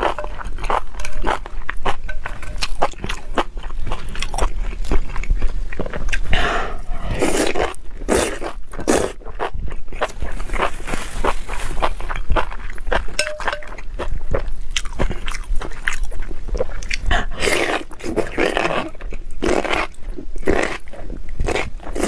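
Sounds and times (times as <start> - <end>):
noisy chewing bursts: 0.0 - 22.0.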